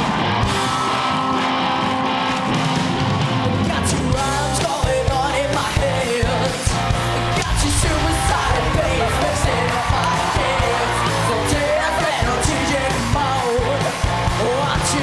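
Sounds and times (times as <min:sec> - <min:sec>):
electric guitar: 0:00.0 - 0:15.0
drum beat: 0:04.2 - 0:14.8.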